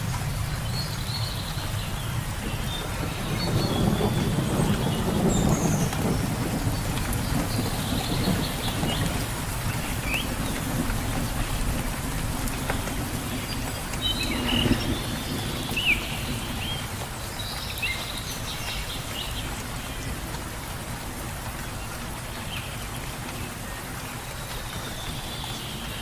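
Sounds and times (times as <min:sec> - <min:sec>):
rain falling in forest: 0:00.0 - 0:26.0.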